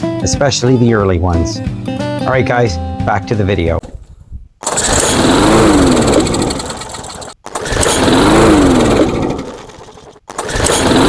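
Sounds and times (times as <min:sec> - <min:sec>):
lawnmower engine firing and revving: 0:03.8 - 0:11.0.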